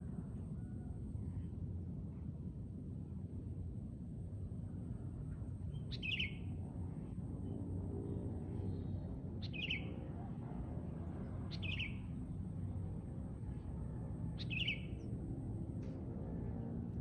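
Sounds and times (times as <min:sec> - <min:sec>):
low background rumble: 0:00.0 - 0:17.0
bulbul calling: 0:05.9 - 0:06.4, 0:09.4 - 0:09.9, 0:11.5 - 0:12.0, 0:14.4 - 0:15.0.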